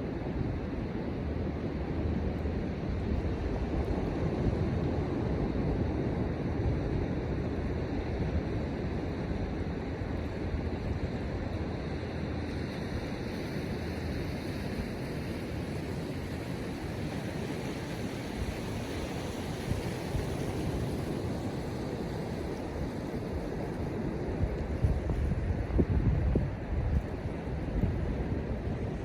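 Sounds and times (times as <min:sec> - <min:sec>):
surf washing on shore: 0:00.0 - 0:29.0
wind buffeting microphone: 0:13.8 - 0:29.0.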